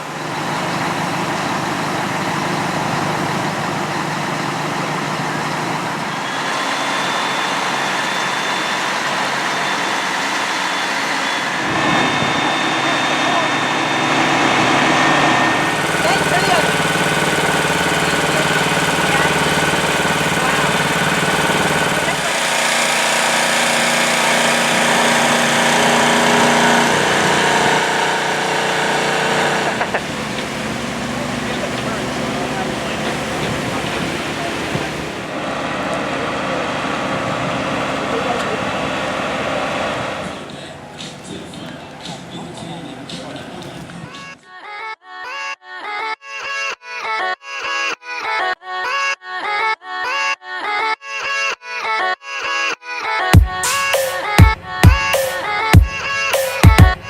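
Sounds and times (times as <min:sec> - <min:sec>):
fire truck engine running: 0:00.0 - 0:44.4.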